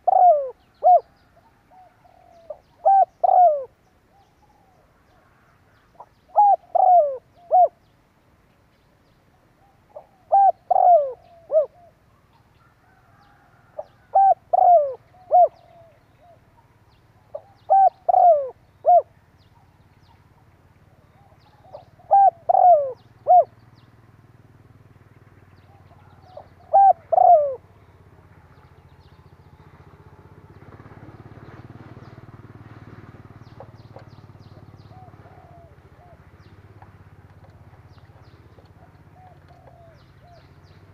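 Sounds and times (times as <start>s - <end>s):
dove cooing: 0.0s - 7.9s, 9.6s - 12.0s, 12.8s - 19.2s, 20.0s - 23.6s, 25.7s - 28.0s, 33.5s - 36.6s, 37.5s - 40.9s
low background hiss: 0.0s - 40.9s.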